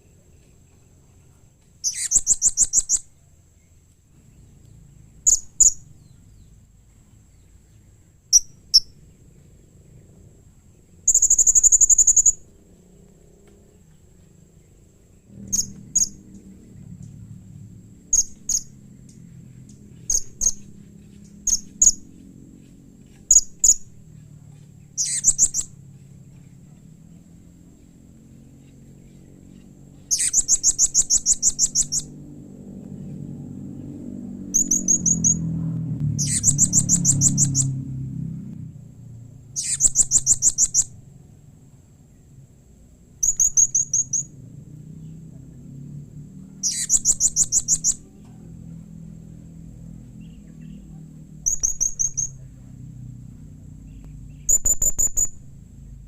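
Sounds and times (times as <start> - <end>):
parrot chirping: 1.8 - 3.1, 5.2 - 6.4, 8.3 - 9.0, 11.1 - 12.5, 15.4 - 16.6, 18.1 - 18.8, 20.0 - 22.2, 23.1 - 23.9, 24.9 - 25.8, 28.6 - 32.1, 34.5 - 35.5, 36.2 - 37.9, 39.5 - 41.0, 43.2 - 44.4, 46.5 - 48.1, 50.2 - 52.4, 54.0 - 55.5
parrot trill: 1.8 - 3.1, 11.1 - 12.5, 15.4 - 16.7, 20.0 - 20.8, 25.0 - 25.8, 29.5 - 32.2, 34.4 - 35.5, 36.1 - 37.9, 39.5 - 41.0, 43.2 - 44.4, 46.5 - 48.2, 50.3 - 52.4, 54.4 - 55.5.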